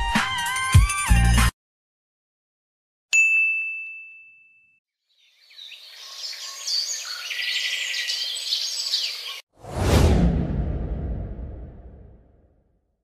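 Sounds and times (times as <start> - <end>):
birds chirping: 5.1 - 9.4.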